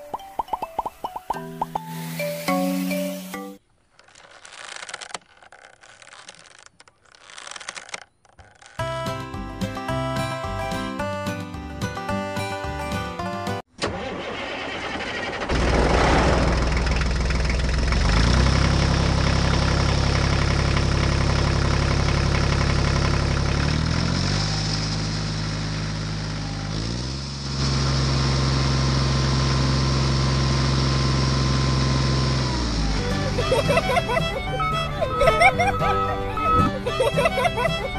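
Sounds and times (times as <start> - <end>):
tractor engine starting and running: 13.6 - 37.9.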